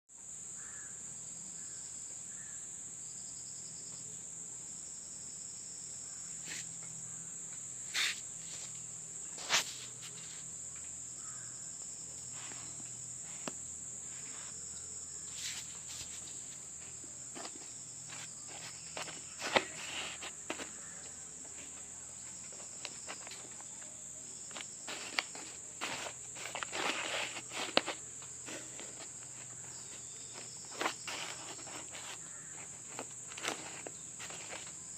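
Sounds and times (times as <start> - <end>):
insects chirring: 0.2 - 34.9
short rustles and taps: 17.3 - 21.8, 24.5 - 34.8.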